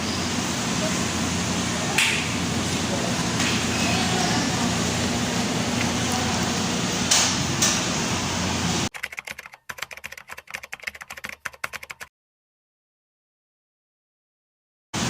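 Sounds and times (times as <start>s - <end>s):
steady hum: 0.0s - 8.9s.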